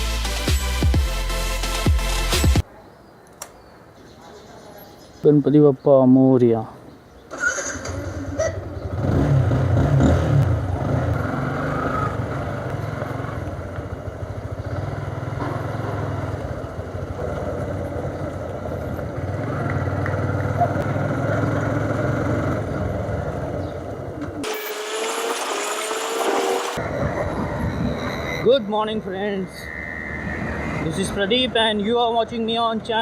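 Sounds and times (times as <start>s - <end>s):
motorcycle engine running: 8.4s - 26.8s.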